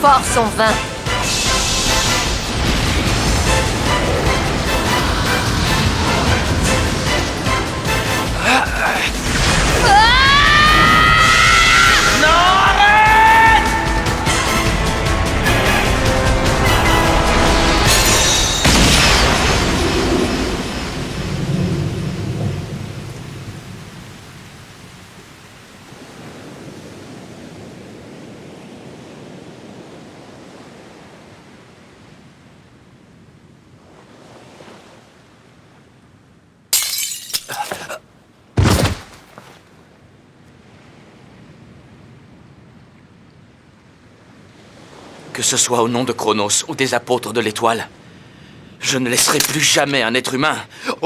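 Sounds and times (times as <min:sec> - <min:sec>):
loud crash with rumble: 0:01.0 - 0:08.4, 0:09.1 - 0:11.0, 0:15.3 - 0:24.0
sharp loud impacts: 0:38.6 - 0:39.5.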